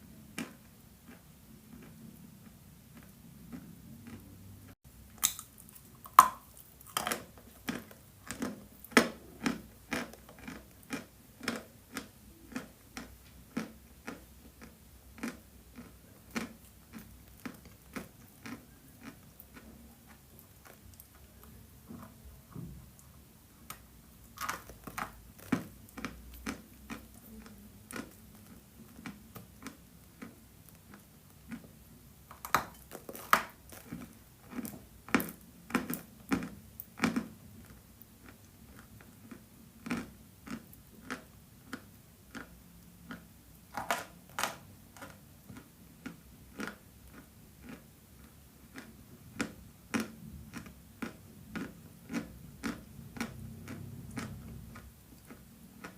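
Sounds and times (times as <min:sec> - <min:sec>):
chalk crunching while chewed: 0:00.4 - 0:04.4, 0:05.2 - 0:21.3, 0:32.3 - 0:55.9.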